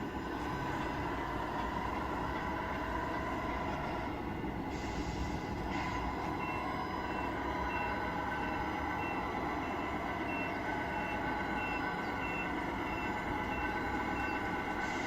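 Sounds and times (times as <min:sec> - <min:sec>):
diesel truck engine sound: 0:00.0 - 0:15.0
reversing beeper: 0:05.9 - 0:15.0.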